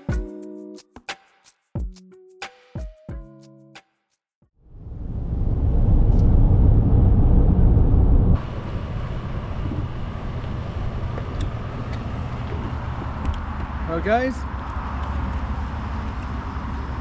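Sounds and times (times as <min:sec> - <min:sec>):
low rumbling noise: 0:04.6 - 0:17.0.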